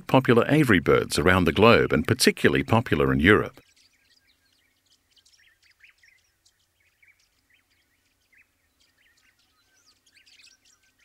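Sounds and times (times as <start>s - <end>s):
faint bird chirps: 3.4s - 11.0s.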